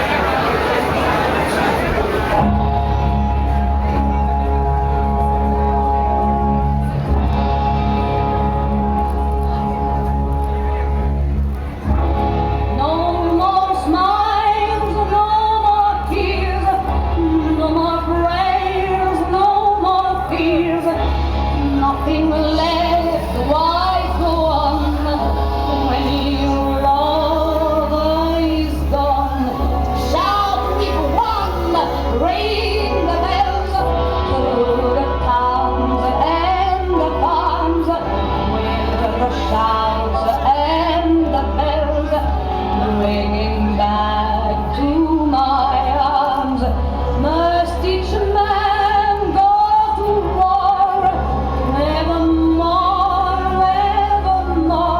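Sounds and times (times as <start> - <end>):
woman singing: 12.7 - 54.9.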